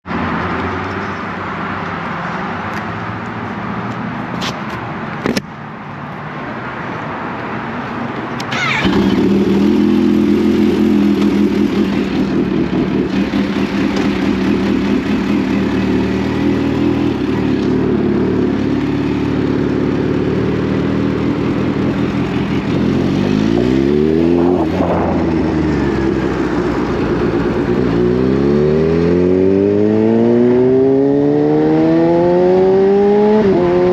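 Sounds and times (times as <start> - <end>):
motorcycle engine revving: 8.4 - 33.9.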